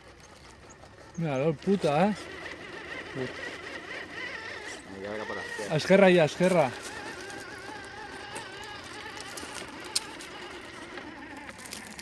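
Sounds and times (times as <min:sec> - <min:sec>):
electric motor and gears whining: 0:00.0 - 0:12.0.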